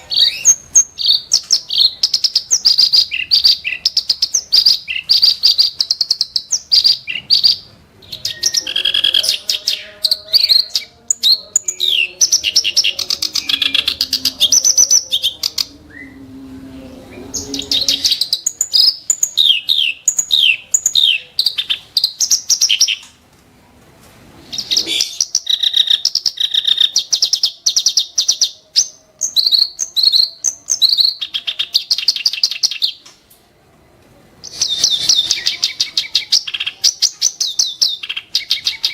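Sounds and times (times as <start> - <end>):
reed warbler singing: 0.0 - 16.2.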